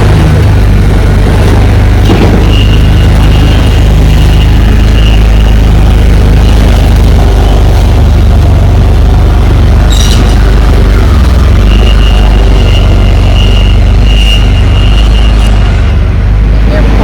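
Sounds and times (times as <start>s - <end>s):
diesel truck engine rumbling: 0.0s - 17.0s.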